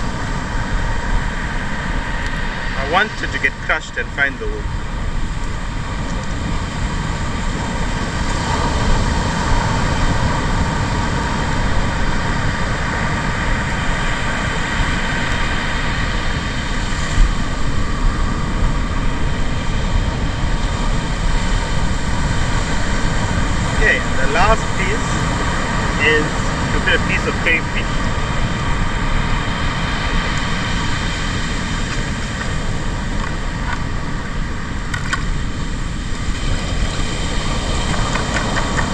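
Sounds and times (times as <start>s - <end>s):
wind on microphone: 0.0s - 38.9s.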